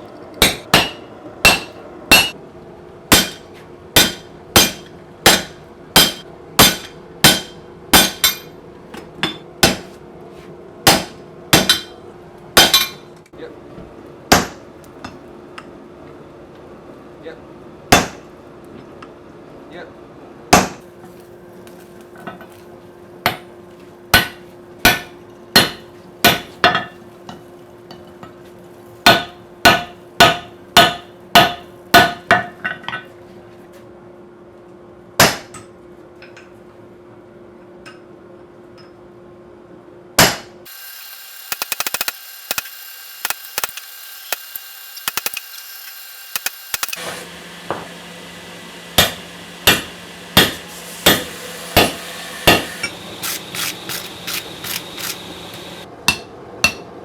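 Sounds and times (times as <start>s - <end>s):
hammer striking steel on anvil: 0.4s - 2.4s, 3.1s - 8.6s, 9.2s - 10.0s, 10.8s - 12.0s, 12.6s - 13.1s, 14.3s - 15.2s, 17.9s - 18.2s, 20.5s - 20.8s, 24.1s - 27.0s, 29.0s - 33.0s, 35.2s - 35.6s, 40.2s - 40.5s, 48.9s - 56.9s.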